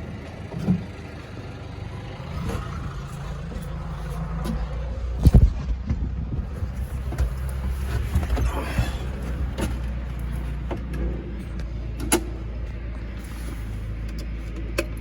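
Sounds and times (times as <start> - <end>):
tractor engine running: 0.0 - 15.0
knocks and clatters: 3.4 - 13.0.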